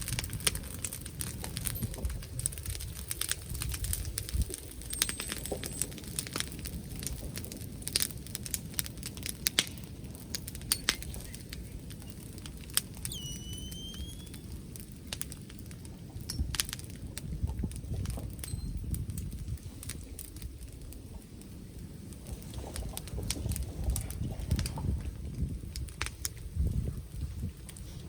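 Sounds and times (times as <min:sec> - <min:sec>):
bonfire crackling and popping: 0:00.0 - 0:28.0
thin whistle: 0:13.0 - 0:14.6.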